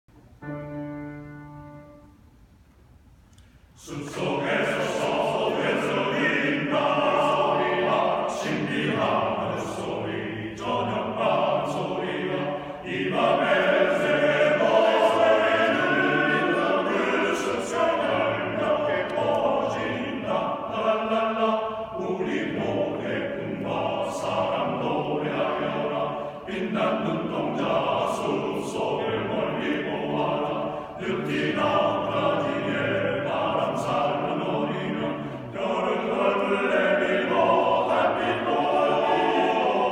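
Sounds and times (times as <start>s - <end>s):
choir singing: 3.8s - 39.9s.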